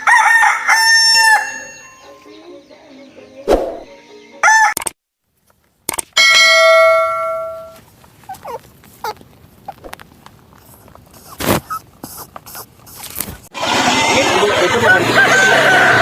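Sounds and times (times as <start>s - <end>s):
faint animal calls: 8.2s - 9.9s.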